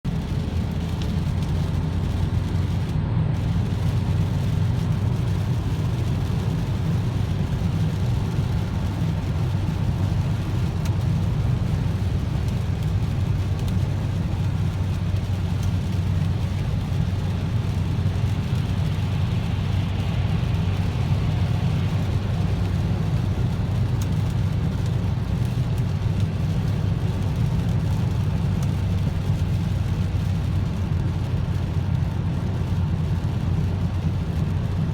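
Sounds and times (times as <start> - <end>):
car engine drone: 0.0 - 34.9
tyres hissing on wet road: 0.1 - 34.9.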